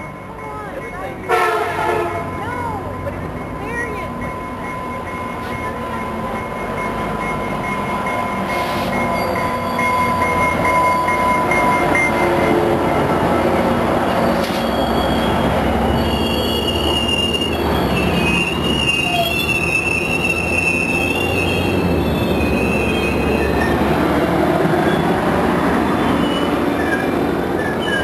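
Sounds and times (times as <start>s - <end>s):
train rumbling past: 0.0s - 28.0s
high wavering wheel squeal: 8.4s - 12.6s, 13.9s - 28.0s.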